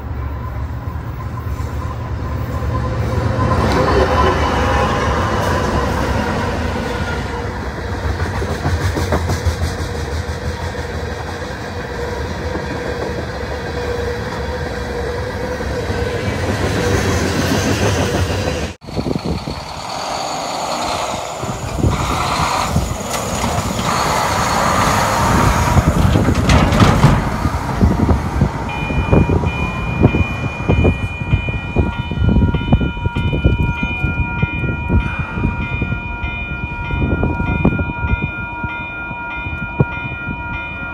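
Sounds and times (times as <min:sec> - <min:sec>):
locomotive engine rumble: 0:00.0 - 0:38.2
train wheels on rails: 0:00.0 - 0:40.9.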